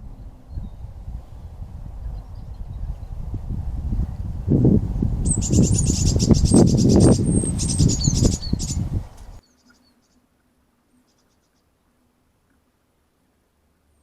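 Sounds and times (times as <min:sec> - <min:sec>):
low rumbling microphone noise: 0:00.0 - 0:09.4
songbird trilling: 0:05.2 - 0:10.2
faint bird chirps: 0:05.2 - 0:10.3, 0:10.9 - 0:11.8.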